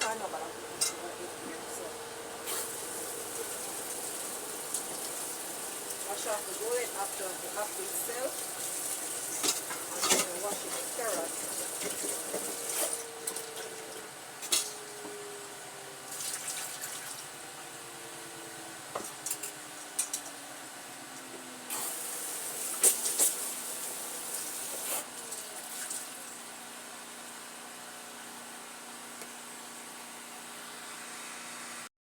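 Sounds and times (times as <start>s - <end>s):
water running at a sink: 1.7s - 15.0s, 16.0s - 17.4s, 21.7s - 26.6s.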